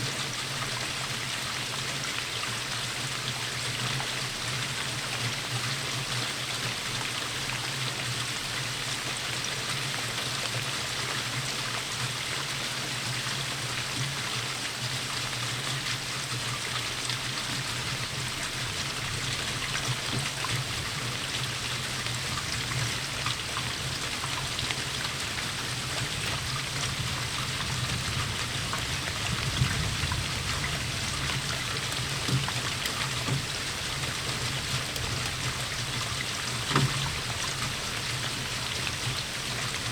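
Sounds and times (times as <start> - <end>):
steady rainfall: 0.0 - 39.9
louder water drips: 17.5 - 39.9.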